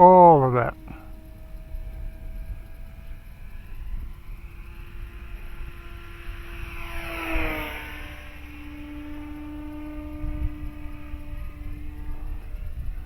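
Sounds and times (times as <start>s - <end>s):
model airplane propeller whine: 0.0s - 13.0s
wind rumble on microphone: 9.6s - 13.0s.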